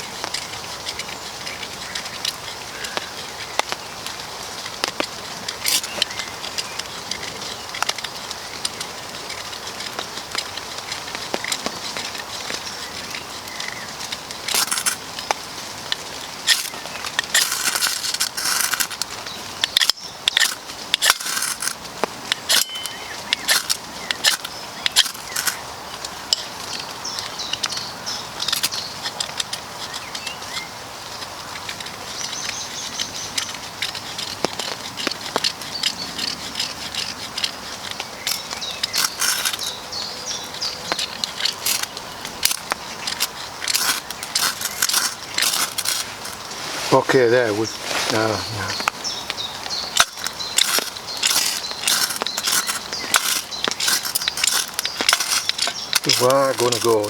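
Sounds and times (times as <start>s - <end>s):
ferro rod scraping: 14.3s - 25.7s, 32.3s - 57.0s.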